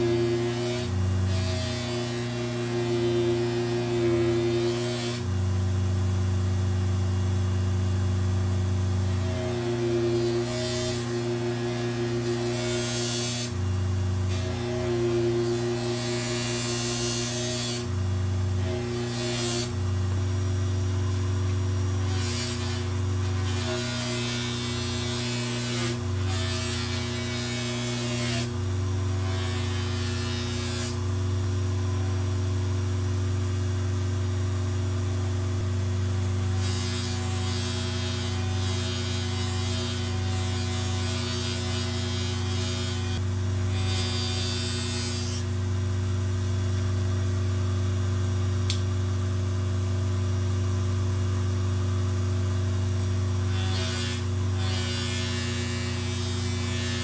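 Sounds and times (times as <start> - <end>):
polishing machine motor humming: 0.0 - 5.4
knife blade rubbing on polishing wheel: 9.2 - 13.6, 14.3 - 17.9, 18.6 - 19.8, 22.0 - 28.6, 29.2 - 31.0, 36.6 - 45.5, 53.4 - 57.0.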